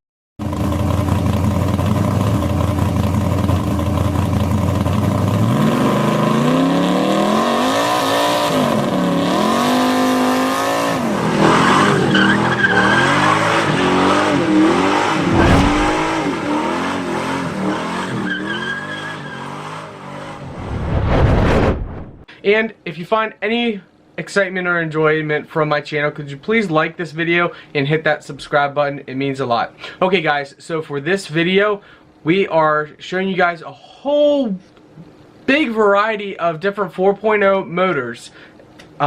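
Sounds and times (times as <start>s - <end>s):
car engine revving: 14.0s - 17.0s.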